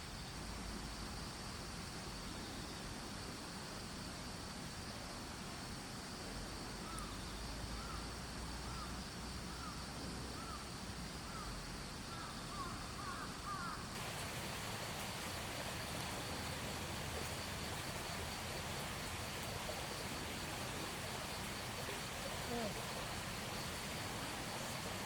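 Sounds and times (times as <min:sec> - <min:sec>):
insect chirring: 0:12.1 - 0:25.0.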